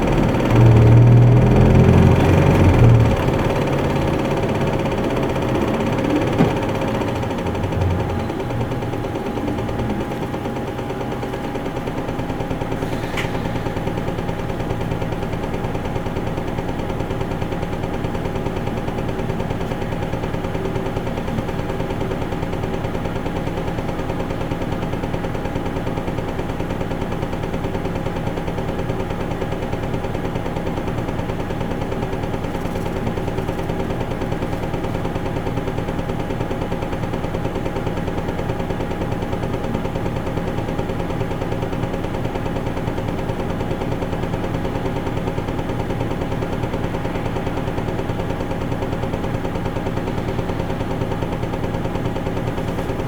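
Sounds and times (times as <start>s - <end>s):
faint engine whine: 0.0s - 15.5s
bus diesel engine running: 0.0s - 53.0s.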